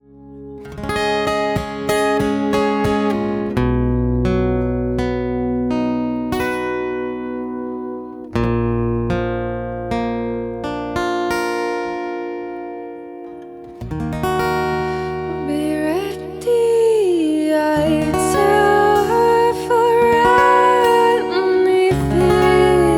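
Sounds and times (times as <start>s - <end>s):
guitar picking: 0.0s - 22.9s
person singing: 15.2s - 22.9s.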